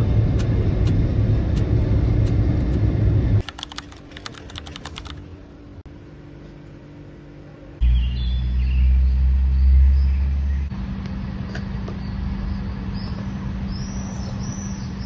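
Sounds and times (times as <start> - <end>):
moving vehicle rumble: 0.0 - 15.0
steady hum: 0.0 - 15.0
traffic noise: 7.1 - 15.0
high bird chirps: 7.8 - 10.7.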